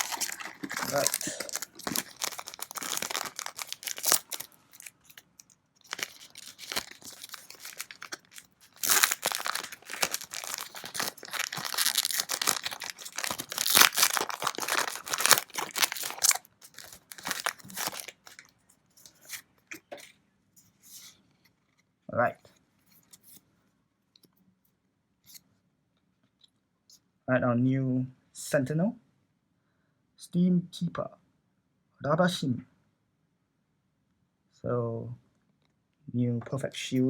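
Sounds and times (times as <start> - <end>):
foil wrappers crinkling and tearing: 0.0 - 18.5.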